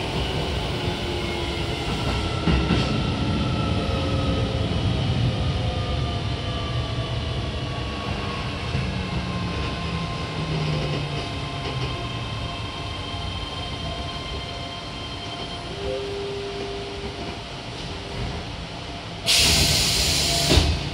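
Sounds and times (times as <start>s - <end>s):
compressed air hiss: 19.3s - 20.7s.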